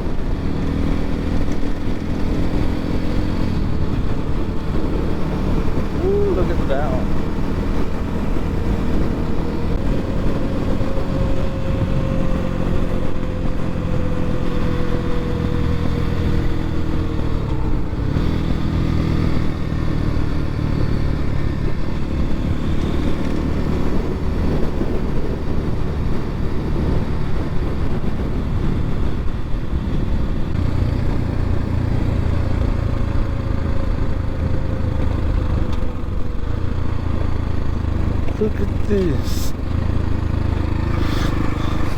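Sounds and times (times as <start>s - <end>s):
dirt bike engine running: 34.2s - 41.9s.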